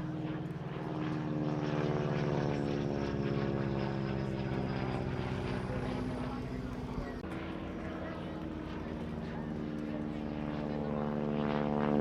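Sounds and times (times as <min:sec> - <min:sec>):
biplane engine droning: 0:00.0 - 0:12.0.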